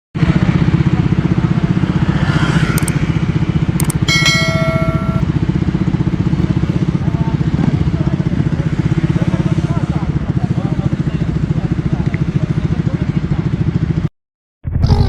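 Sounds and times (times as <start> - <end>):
motorcycle engine idling: 2.8 - 14.0
brief high tone: 4.0 - 5.2.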